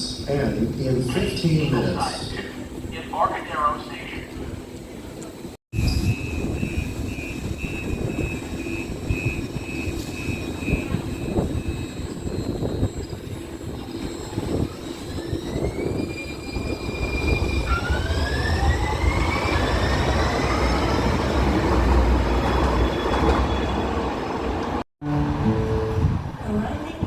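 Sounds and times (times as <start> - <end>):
train rumbling on rails: 0.0 - 27.0
traction motors whining: 5.8 - 23.8.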